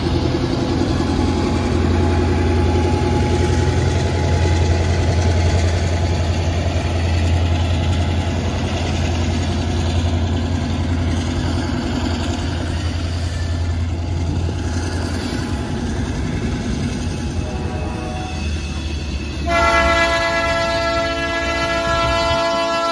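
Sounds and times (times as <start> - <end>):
diesel locomotive engine humming: 0.0 - 22.9.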